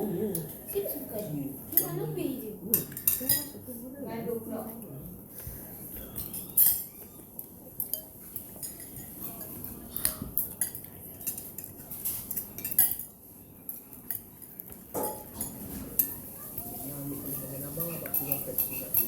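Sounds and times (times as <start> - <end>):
cutlery clinking against bowls: 0.2 - 3.7, 4.6 - 19.0.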